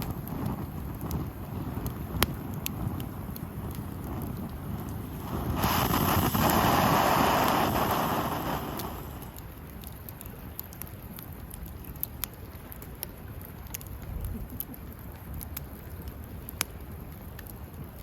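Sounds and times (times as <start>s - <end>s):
campfire crackling and popping: 0.0s - 18.0s
loud rushing whoosh: 4.8s - 9.3s.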